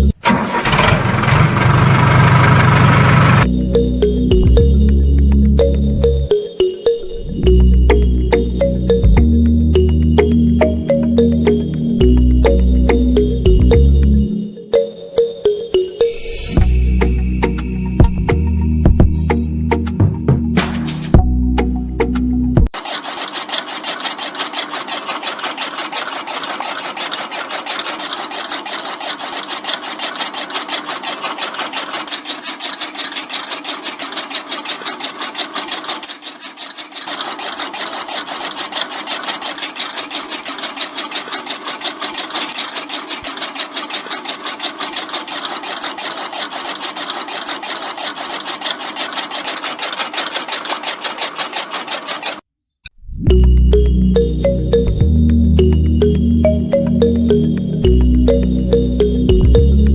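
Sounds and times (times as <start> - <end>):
small electric motor clattering: 0.0 - 4.2, 22.7 - 52.5.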